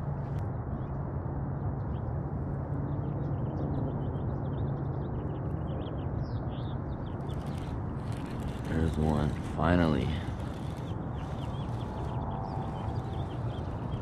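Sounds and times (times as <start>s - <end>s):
small birds chirping: 4.5s - 14.0s.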